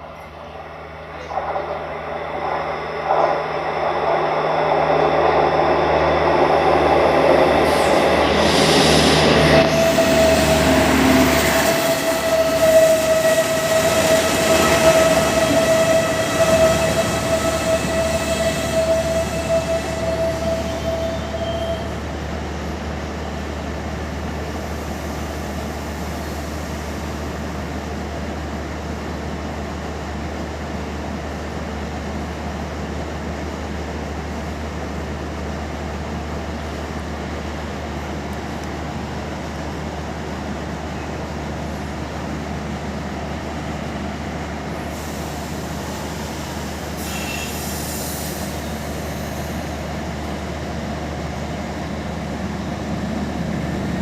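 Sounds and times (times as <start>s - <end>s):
train engine hum: 0.0s - 54.0s
high squeal: 7.4s - 22.0s, 47.0s - 49.6s.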